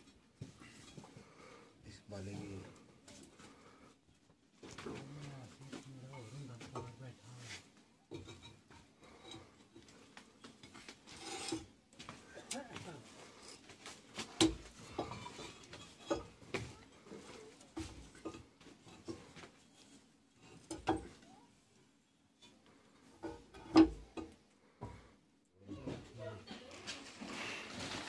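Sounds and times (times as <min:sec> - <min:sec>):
faint voices: 0:25.6 - 0:27.5.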